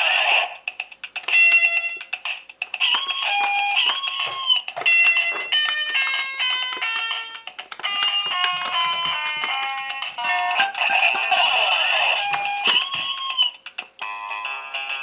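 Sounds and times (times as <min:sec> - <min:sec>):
sharp clicks: 0:01.0 - 0:04.1, 0:04.8 - 0:11.5.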